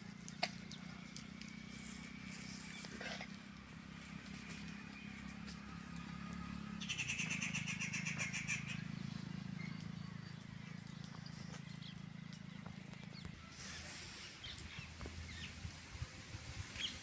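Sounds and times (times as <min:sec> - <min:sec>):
bird calling rapid high notes: 0:06.8 - 0:08.9.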